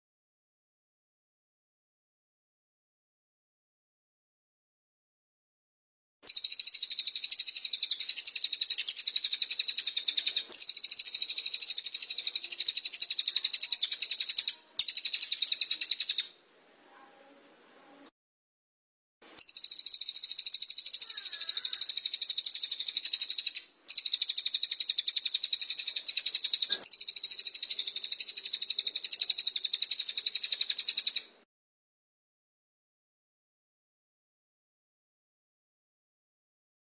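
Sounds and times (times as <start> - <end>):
songbird trilling: 6.3 - 16.4, 19.3 - 31.3.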